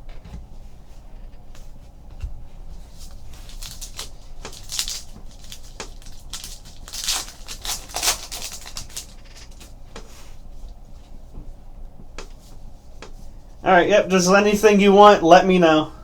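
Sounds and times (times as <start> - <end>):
cards and packaging crinkling: 2.9 - 9.8.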